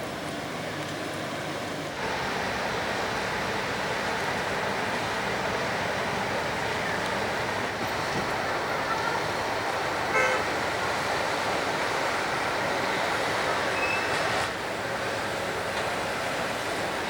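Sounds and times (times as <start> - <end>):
rushing outdoor noise: 0.0 - 17.0.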